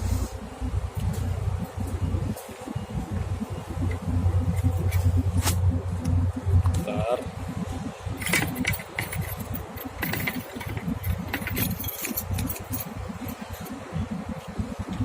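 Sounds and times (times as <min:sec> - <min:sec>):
choppy low rumble: 0:00.0 - 0:15.0
light clicking and jingling: 0:08.2 - 0:13.9.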